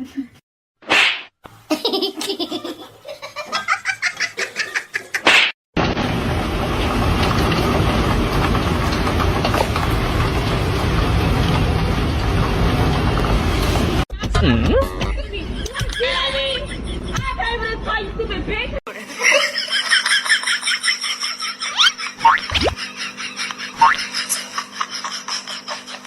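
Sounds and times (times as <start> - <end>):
person laughing: 18.9 - 26.0.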